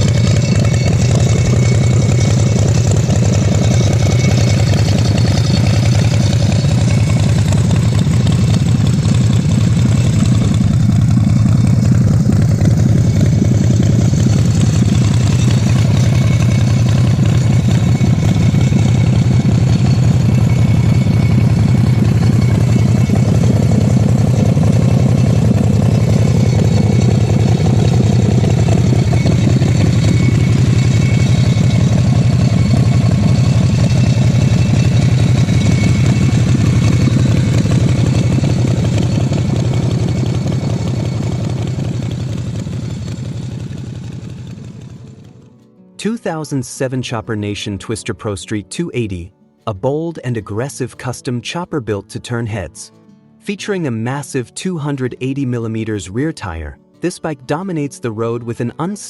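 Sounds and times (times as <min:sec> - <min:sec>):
motorcycle engine idling: 0:00.0 - 0:45.6.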